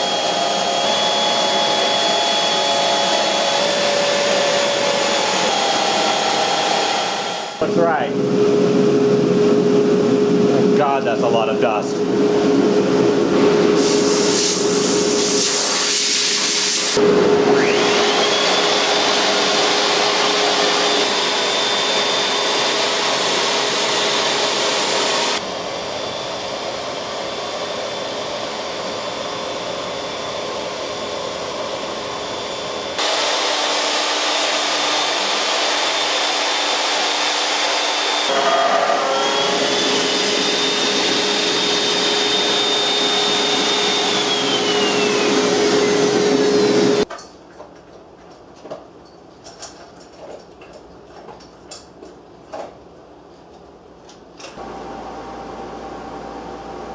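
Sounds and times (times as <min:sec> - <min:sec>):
router spindle motor whine: 0:00.0 - 0:09.9, 0:16.8 - 0:47.1, 0:54.6 - 0:56.9.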